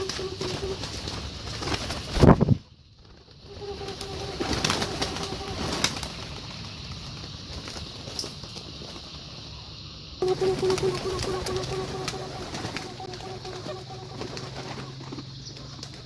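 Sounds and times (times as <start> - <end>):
pigeons cooing: 0.0 - 2.0, 3.5 - 6.4, 10.2 - 16.0.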